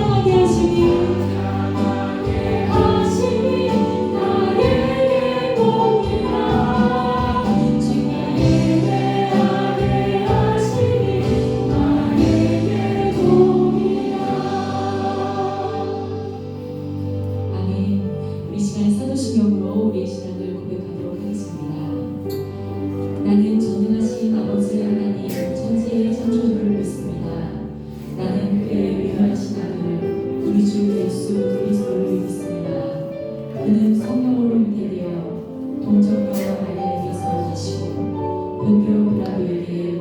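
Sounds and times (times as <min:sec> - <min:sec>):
group singing worship song: 0:00.0 - 0:17.0, 0:27.1 - 0:31.0, 0:38.6 - 0:40.0
instrumental accompaniment: 0:00.0 - 0:18.5.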